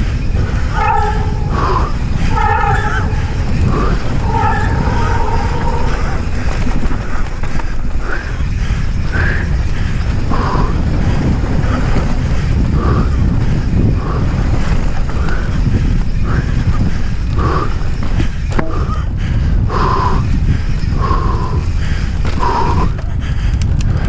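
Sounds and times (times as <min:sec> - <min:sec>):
bike tyre rumble on dirt: 0:00.0 - 0:24.0
rider breathing hard: 0:00.0 - 0:24.0
wind buffeting microphone: 0:00.0 - 0:24.0.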